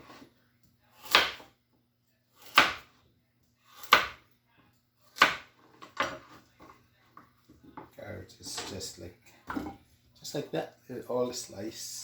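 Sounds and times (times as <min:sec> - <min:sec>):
knife cutting carrot on board: 0:00.9 - 0:01.6, 0:02.4 - 0:03.0, 0:03.7 - 0:04.2, 0:05.1 - 0:06.4.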